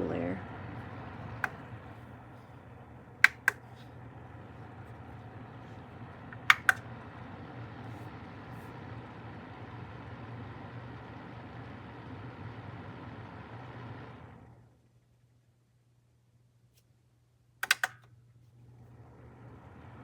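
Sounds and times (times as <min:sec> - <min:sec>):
heater fan rushing air: 0:00.0 - 0:14.8, 0:18.6 - 0:20.0
heater sharp clicks: 0:00.8 - 0:03.9, 0:06.2 - 0:07.0, 0:17.6 - 0:18.2.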